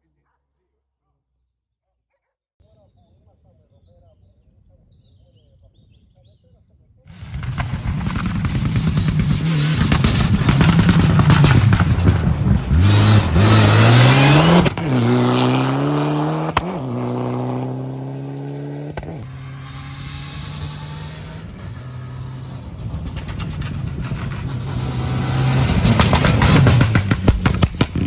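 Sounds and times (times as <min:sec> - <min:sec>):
rally car engine at full throttle: 0:07.1 - 0:28.0
sharp crack at upshift: 0:25.6 - 0:28.0.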